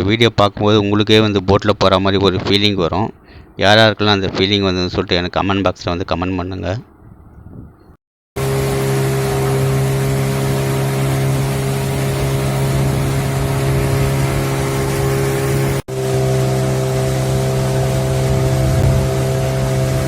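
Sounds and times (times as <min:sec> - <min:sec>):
motorboat engine running: 0:08.4 - 0:20.0
wind and water rushing: 0:08.4 - 0:20.0.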